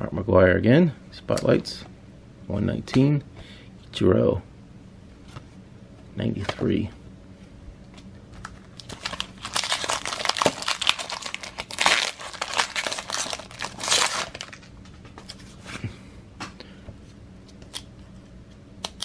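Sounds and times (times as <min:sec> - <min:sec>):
wrapper tearing and crinkling: 0:08.5 - 0:14.7.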